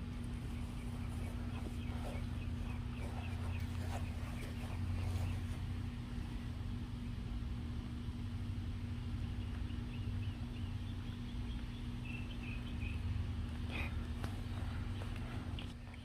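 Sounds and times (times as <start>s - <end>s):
steady low hum: 0.0s - 16.0s
small bird chirping: 0.1s - 5.9s, 8.8s - 15.2s.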